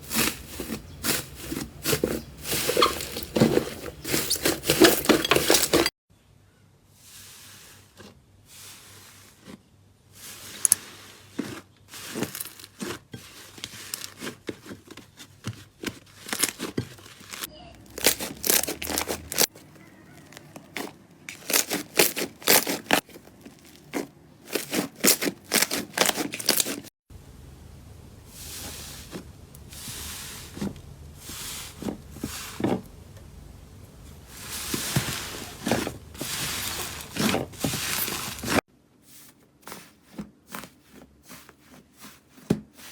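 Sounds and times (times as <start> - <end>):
slime popping and crackling: 17.3 - 19.5, 20.8 - 23.0.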